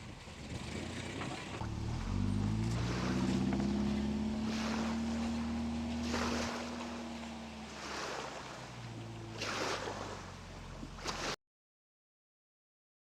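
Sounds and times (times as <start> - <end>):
water splashing against a hull: 0.0 - 11.4
steady low drone: 1.5 - 11.0.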